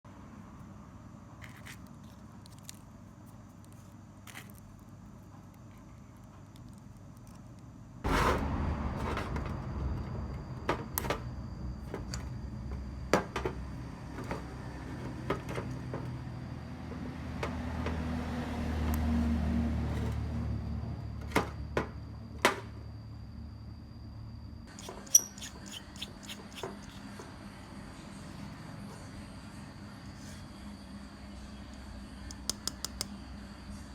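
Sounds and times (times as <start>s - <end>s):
low hum: 8.0s - 24.7s.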